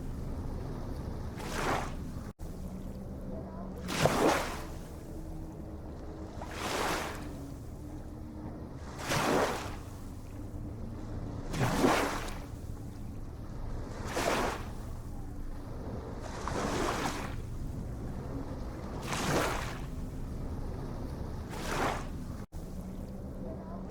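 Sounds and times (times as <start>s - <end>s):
small waves breaking: 0.0s - 23.9s
low rumble: 12.3s - 23.9s.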